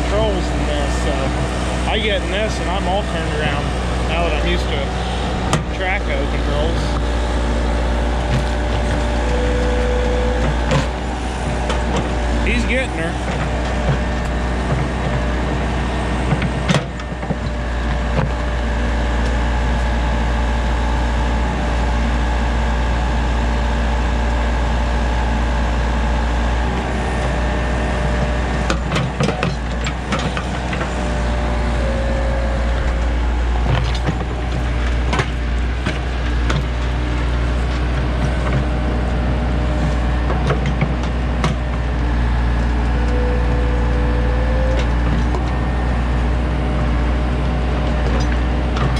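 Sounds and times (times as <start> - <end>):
diesel engine running under load: 0.0 - 48.9
hydraulic whines: 0.0 - 48.9.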